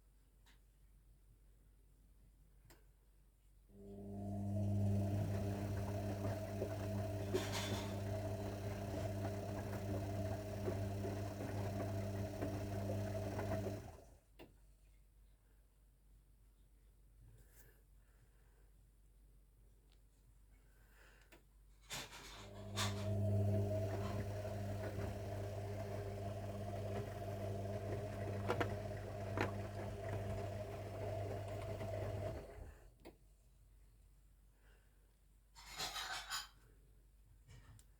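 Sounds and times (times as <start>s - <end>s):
washing machine humming: 3.8s - 14.4s, 22.4s - 33.0s.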